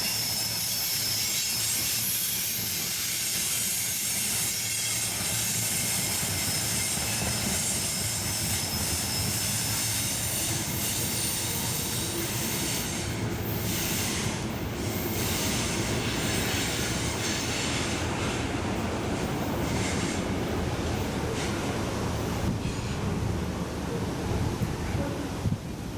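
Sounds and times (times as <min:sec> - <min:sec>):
train rumbling on track: 0:00.0 - 0:25.9.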